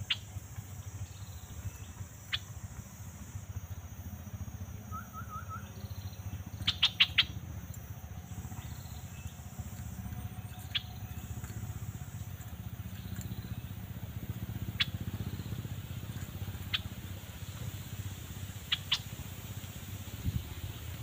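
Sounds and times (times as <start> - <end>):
bird chirps: 0.0 - 3.8, 4.7 - 17.0, 18.6 - 19.1
steady low rumble: 0.0 - 21.0.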